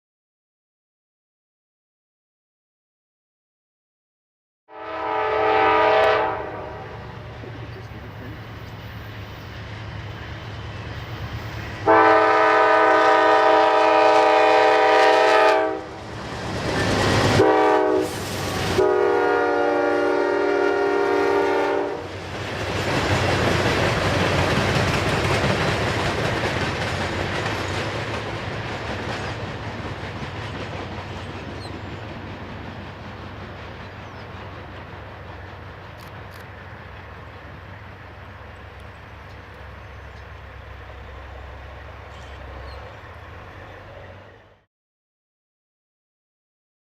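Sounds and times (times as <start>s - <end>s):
diesel locomotive horn blasts: 4.7s - 7.2s, 11.8s - 16.1s, 17.3s - 22.1s
locomotive rumbling past: 4.8s - 44.7s.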